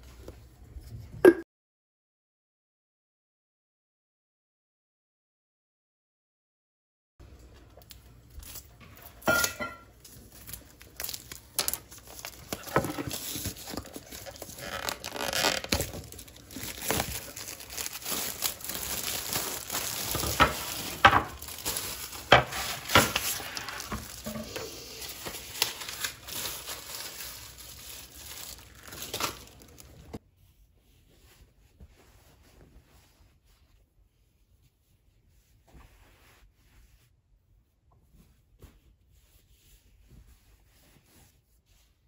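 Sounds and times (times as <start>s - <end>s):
packaging crinkling: 10.0s - 30.2s.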